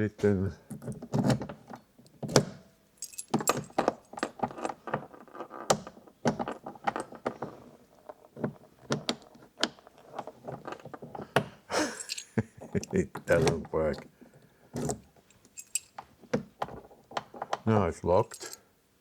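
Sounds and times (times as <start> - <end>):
door lock clicking and rattling: 0.7 - 7.5, 8.6 - 14.1, 14.7 - 18.6
keys jangling: 3.0 - 4.7, 11.8 - 13.6, 14.8 - 16.0, 18.1 - 18.6.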